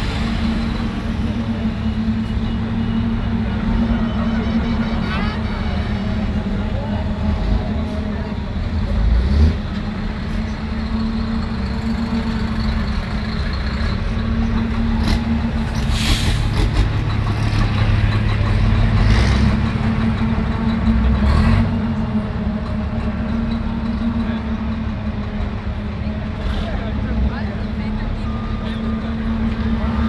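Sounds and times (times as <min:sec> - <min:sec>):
truck diesel engines running: 0:00.0 - 0:30.0
short air hisses: 0:15.8 - 0:16.6.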